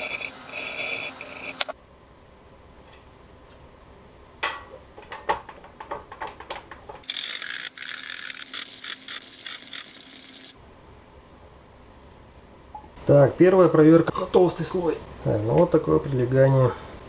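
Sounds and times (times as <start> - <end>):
harsh high rubbing noise: 0.0 - 1.8
sharp clicks and knocks: 4.4 - 7.3.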